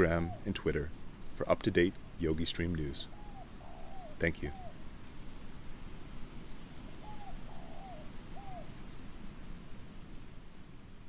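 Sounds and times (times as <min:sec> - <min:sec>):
bird calls: 0:00.0 - 0:00.9, 0:02.3 - 0:04.8, 0:06.9 - 0:08.8
steady background hiss: 0:00.0 - 0:11.0.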